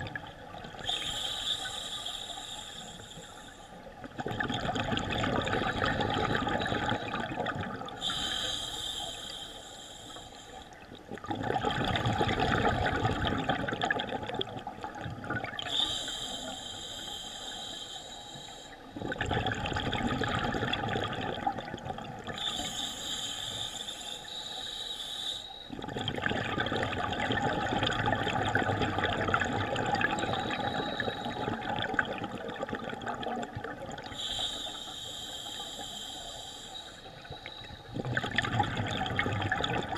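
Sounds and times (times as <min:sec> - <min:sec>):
regulator hissing inhale: 0:00.8 - 0:03.9, 0:08.0 - 0:10.8, 0:15.7 - 0:19.0, 0:22.4 - 0:25.7, 0:30.2 - 0:31.6, 0:34.1 - 0:37.9
exhale bubbles rushing: 0:11.2 - 0:14.3, 0:25.7 - 0:34.1, 0:37.9 - 0:39.9.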